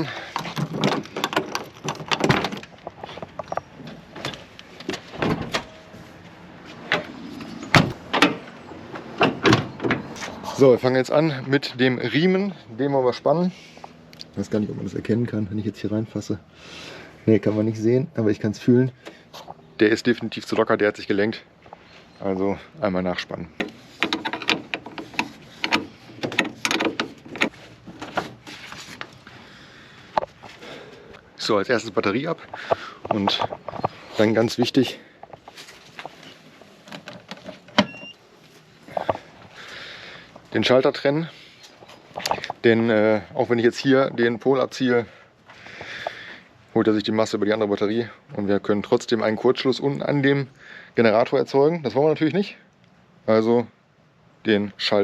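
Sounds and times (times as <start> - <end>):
knocks and clicks of handling: 0.2 - 5.8, 23.6 - 29.2, 35.2 - 38.1.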